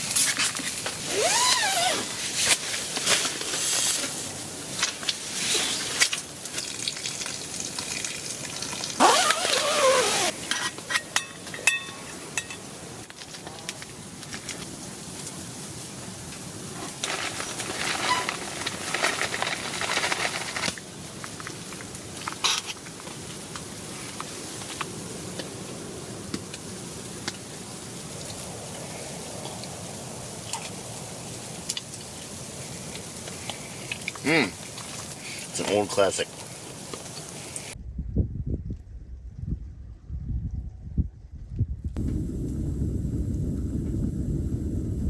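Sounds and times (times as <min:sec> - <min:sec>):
food sizzling on a stove: 0:42.0 - 0:45.0.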